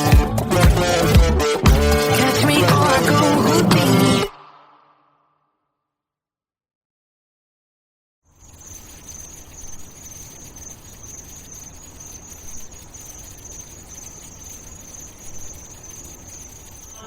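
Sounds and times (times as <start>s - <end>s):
high insect-like chirring: 8.3s - 17.0s.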